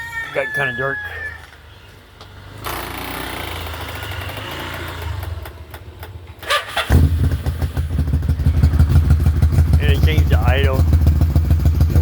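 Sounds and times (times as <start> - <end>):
motorcycle engine starter cranking: 2.6 - 7.9
motorcycle engine running loud: 6.9 - 12.0.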